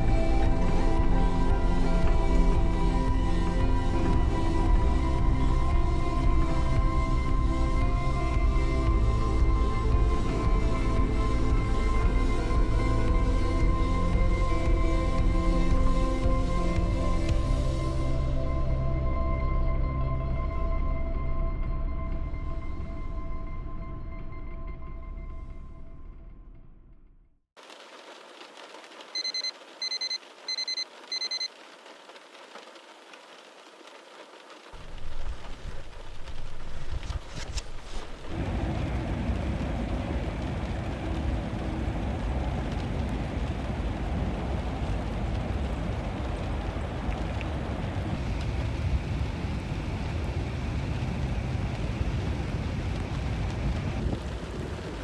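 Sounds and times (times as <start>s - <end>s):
rain pattering: 0.0s - 18.2s, 27.6s - 55.0s
low rumble: 0.0s - 26.8s, 34.8s - 55.0s
electronic alarm beeping: 29.2s - 31.5s.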